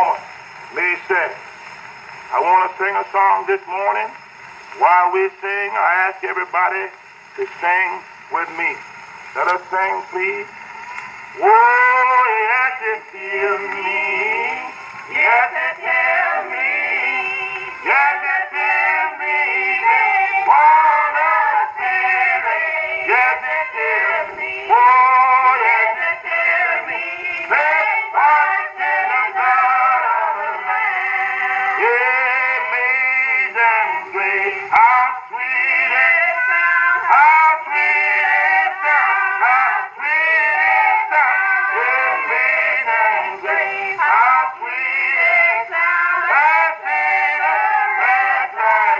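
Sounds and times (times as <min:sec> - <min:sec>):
male-led choir singing a hymn: 0:00.0 - 0:10.7, 0:11.3 - 0:48.9.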